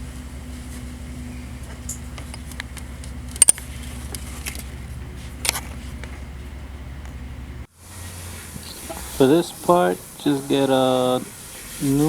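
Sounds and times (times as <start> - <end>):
low mechanical rumble: 0.0 - 12.0
tools being handled clicking: 1.8 - 4.7.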